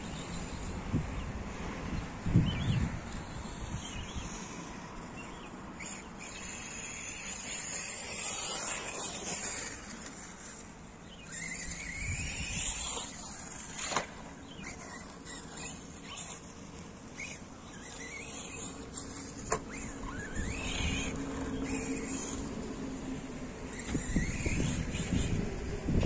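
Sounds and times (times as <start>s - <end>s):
electric motor whining: 5.1s - 26.0s.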